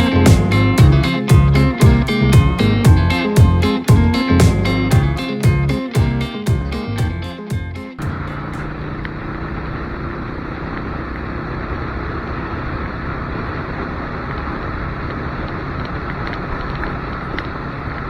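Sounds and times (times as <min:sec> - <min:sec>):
motorcycle engine hum: 0:08.0 - 0:18.0
road noise: 0:08.0 - 0:18.0.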